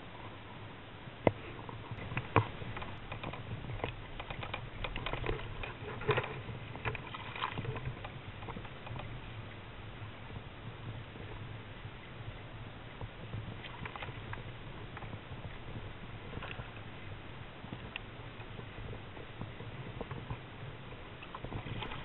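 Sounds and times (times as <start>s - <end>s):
low hum: 0.0s - 22.0s
small knocks and clicks: 1.2s - 9.2s.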